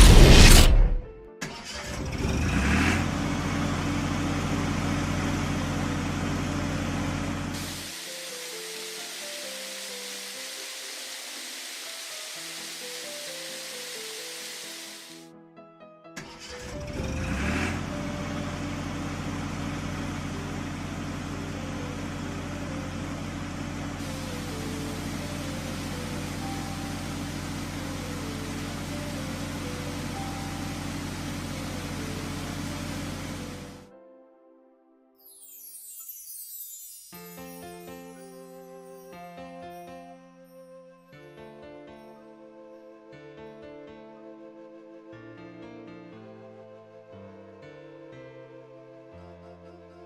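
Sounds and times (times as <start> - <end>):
cartoon vehicle engine: 0.0 - 7.8, 16.2 - 33.8.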